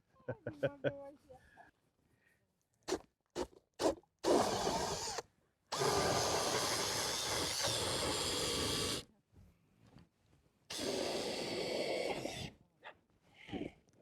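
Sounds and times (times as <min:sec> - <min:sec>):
small motor running: 0:04.2 - 0:09.0, 0:10.7 - 0:12.5.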